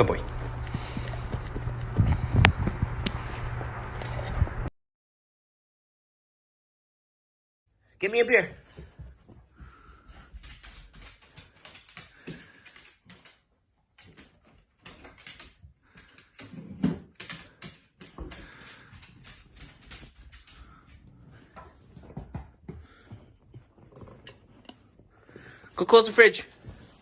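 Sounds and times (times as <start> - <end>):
dog claws clicking on hard floor: 9.6 - 25.1.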